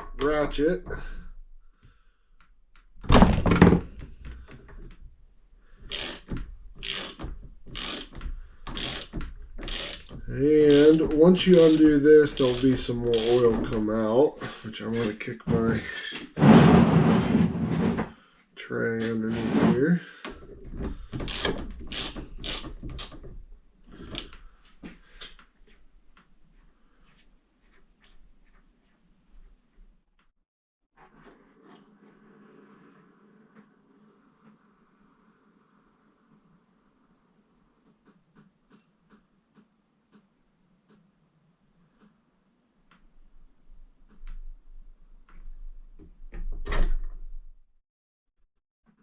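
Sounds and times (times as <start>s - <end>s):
ratchet cranking: 5.9s - 13.6s, 21.2s - 23.2s, 24.0s - 24.4s.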